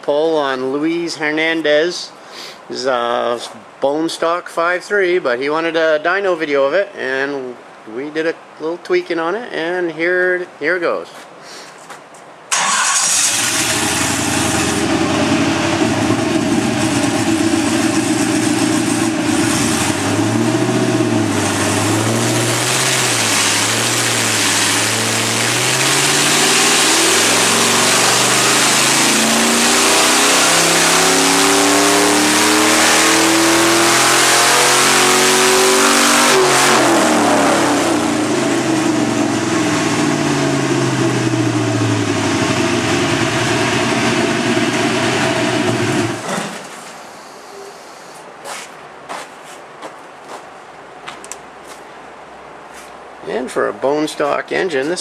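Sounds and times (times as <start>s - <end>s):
engine running on a dyno: 12.6s - 46.4s.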